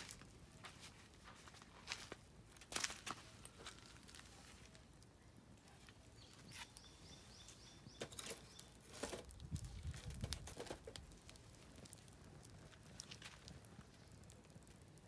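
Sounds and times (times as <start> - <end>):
firewood crackling in campfire: 0.0 - 15.0
sharp fire pops: 8.0 - 15.0.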